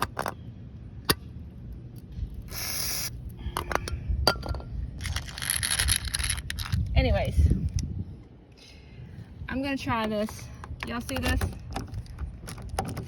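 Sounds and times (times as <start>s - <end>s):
aerosol can spraying hiss: 2.5s - 3.1s.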